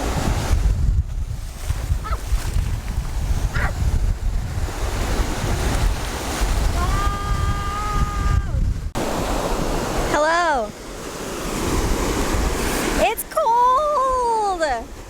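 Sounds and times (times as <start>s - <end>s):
wind buffeting microphone: 0.0s - 10.2s, 11.1s - 15.0s
ocean surf washing in: 0.0s - 15.0s.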